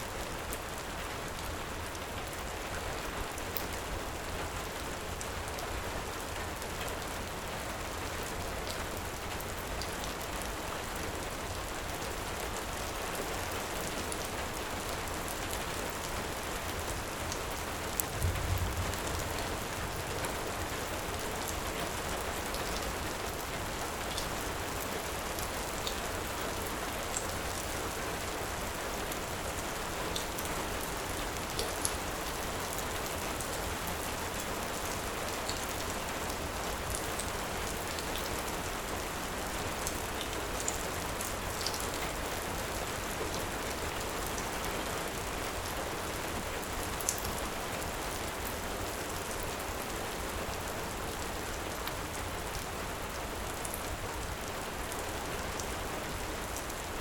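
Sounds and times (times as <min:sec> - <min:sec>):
heavy rain: 0:00.0 - 0:57.0
low thump: 0:18.1 - 0:19.6.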